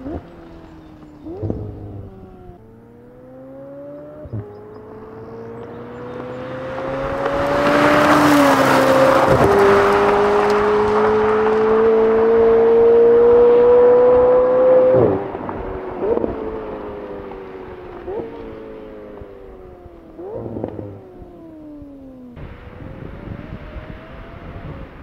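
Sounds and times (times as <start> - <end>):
sports car accelerating through gears: 0.0 - 25.0.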